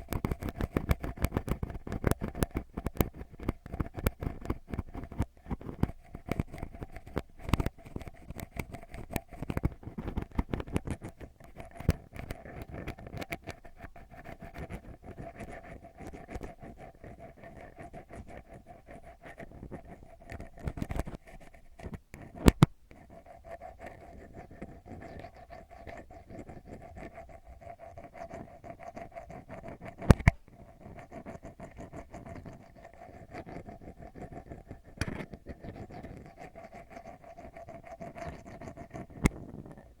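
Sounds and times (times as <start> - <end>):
ear pick scratching microphone: 17.8 - 23.0, 28.0 - 40.0.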